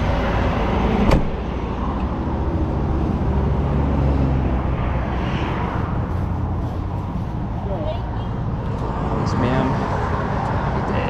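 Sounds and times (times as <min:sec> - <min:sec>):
engine idling: 0:05.6 - 0:11.0.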